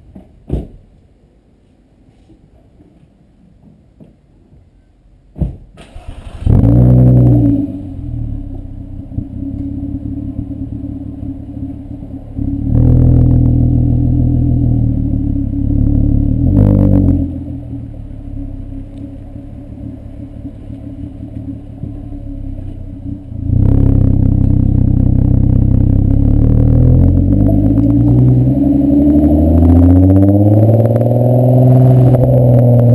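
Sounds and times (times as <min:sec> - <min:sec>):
car engine starting and idling: 0:05.8 - 0:32.9
engine throttle blips: 0:06.0 - 0:32.9
engine running at high revs: 0:23.4 - 0:32.9.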